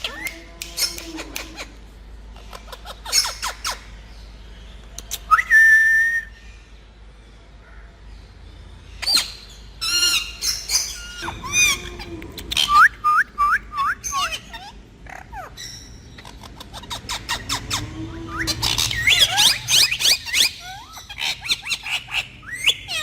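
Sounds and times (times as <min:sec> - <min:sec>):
parrots harsh calls: 0:00.0 - 0:03.9, 0:09.0 - 0:23.0
parrot rising whistle: 0:11.1 - 0:14.4, 0:17.3 - 0:20.5.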